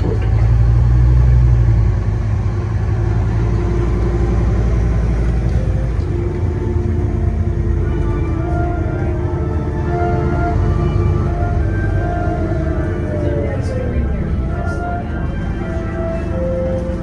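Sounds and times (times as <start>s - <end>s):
bus diesel engine drone: 0.0s - 17.0s.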